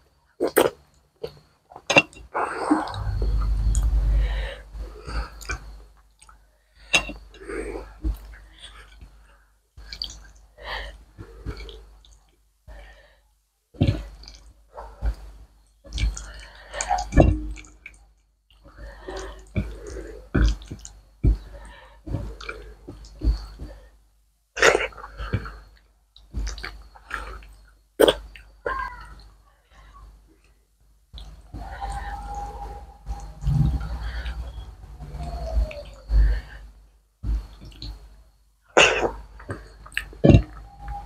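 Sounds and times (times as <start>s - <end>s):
chewing and lip smacks: 9.8s - 10.4s, 26.2s - 27.6s, 39.0s - 40.7s.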